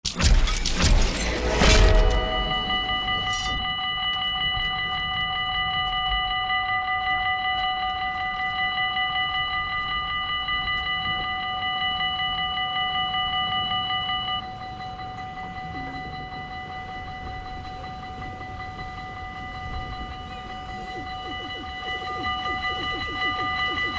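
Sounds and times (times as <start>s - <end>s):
level-crossing bells ringing: 14.7s - 23.9s.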